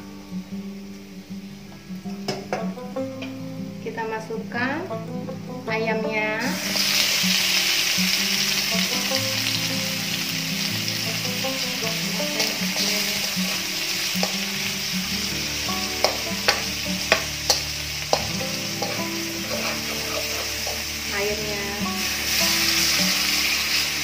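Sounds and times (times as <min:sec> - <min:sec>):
chicken sizzling in oil: 0:06.4 - 0:24.0
metal spatula knocking wok: 0:15.7 - 0:20.9.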